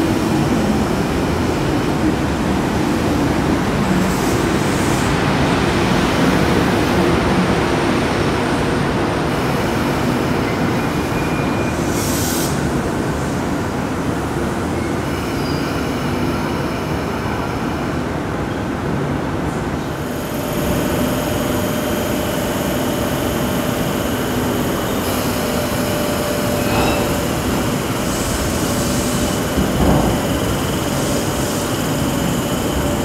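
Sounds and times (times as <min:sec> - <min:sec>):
train rumble: 0:19.2 - 0:33.0.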